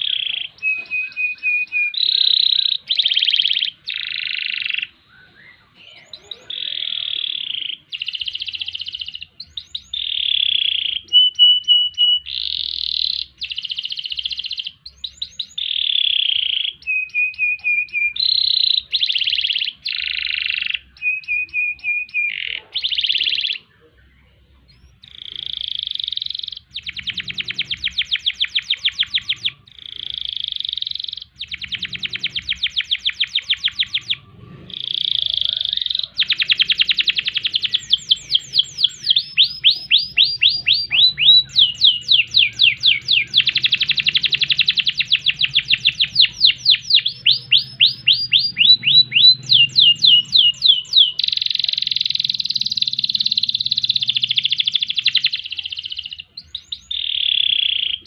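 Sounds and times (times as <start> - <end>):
canary singing: 0.0 - 58.0.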